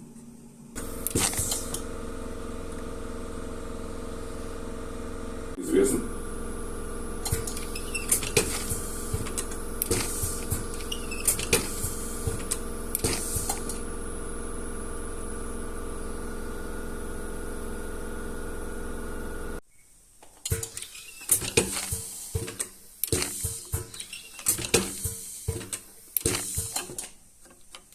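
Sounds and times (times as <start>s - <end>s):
machine hum: 0.0s - 19.6s.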